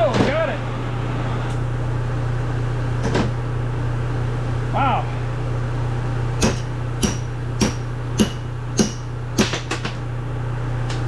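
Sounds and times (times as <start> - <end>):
steady low hum: 0.0 - 11.0
hammer striking metal: 6.4 - 10.0.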